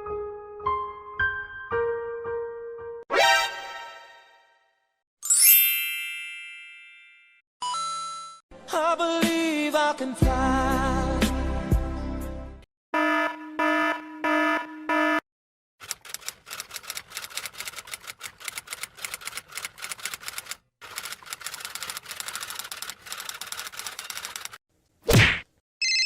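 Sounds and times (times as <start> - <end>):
rapid typing on keys: 15.8 - 24.6.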